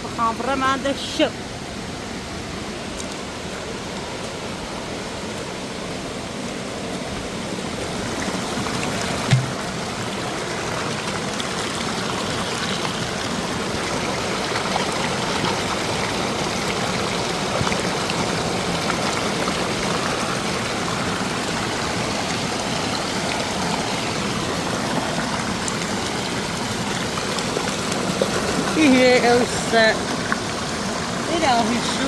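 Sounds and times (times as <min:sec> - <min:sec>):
water rushing over rocks: 0:00.0 - 0:32.0.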